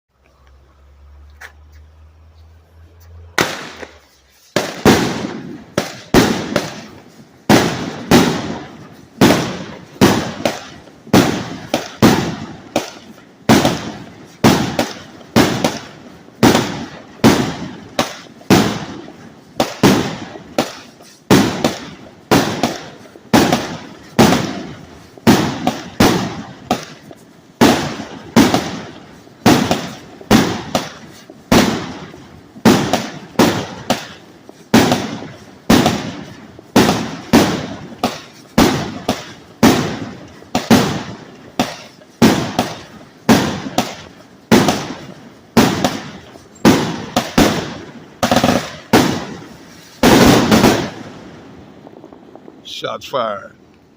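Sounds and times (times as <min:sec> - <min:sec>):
fireworks salute bangs echoing: 0:01.0 - 0:53.9
fireworks shots spinning: 0:03.1 - 0:52.9.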